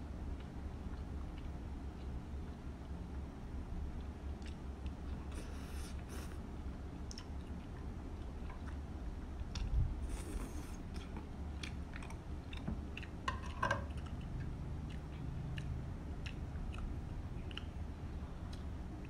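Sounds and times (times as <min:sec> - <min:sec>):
person chewing noodles: 0:04.0 - 0:06.4, 0:07.0 - 0:19.0
slurp: 0:10.0 - 0:10.9.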